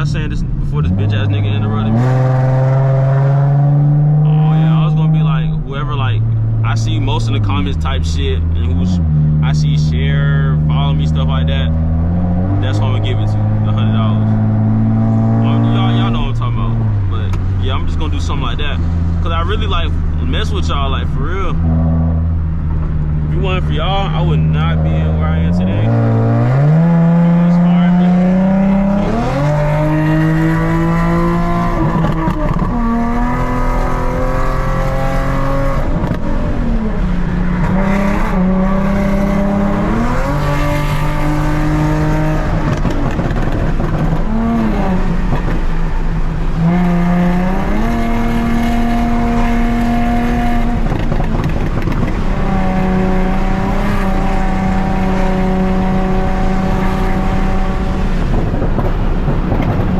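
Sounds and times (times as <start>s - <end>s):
car exhaust accelerating through gears: 0.0s - 59.9s.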